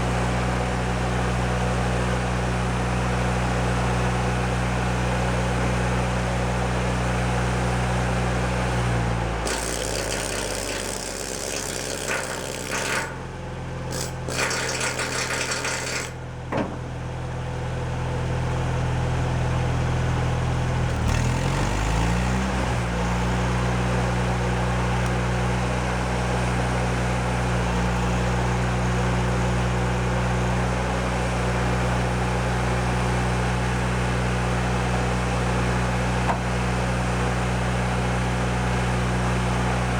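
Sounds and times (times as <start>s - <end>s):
welder engine running: 8.2s - 16.9s, 18.1s - 39.9s.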